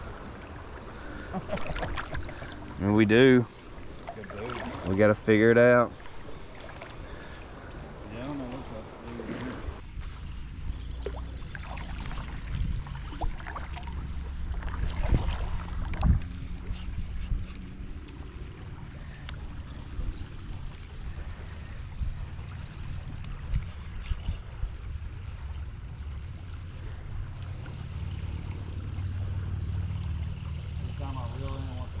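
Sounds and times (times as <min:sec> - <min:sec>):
light water noise: 0:00.0 - 0:32.0
steady low rumble: 0:09.7 - 0:32.0.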